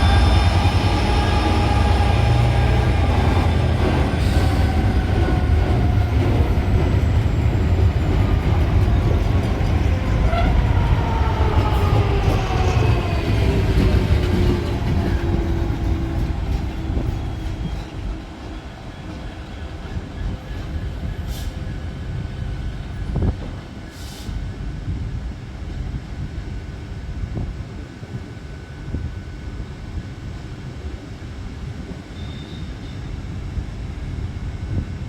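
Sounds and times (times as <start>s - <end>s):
diesel train passing: 0.0s - 27.1s.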